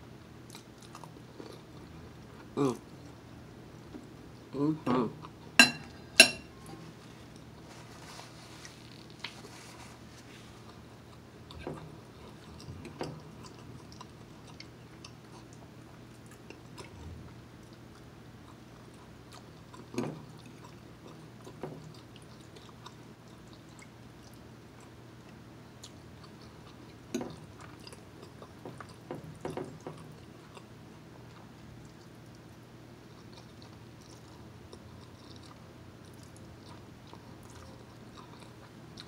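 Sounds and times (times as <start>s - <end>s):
person chewing: 0.4s - 3.2s, 8.5s - 30.7s, 33.1s - 39.0s.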